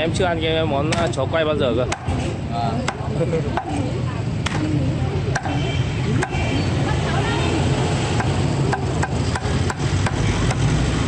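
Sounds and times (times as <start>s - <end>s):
cleaver chopping meat on wood: 0.9s - 1.2s, 1.9s - 4.7s, 5.3s - 5.6s, 6.2s - 6.5s, 8.1s - 10.8s.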